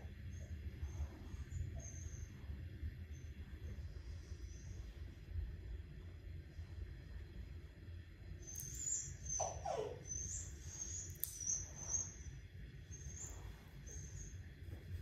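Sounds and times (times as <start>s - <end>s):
small birds chirping: 0.0s - 5.1s, 8.4s - 15.0s
low background rumble: 0.0s - 15.0s.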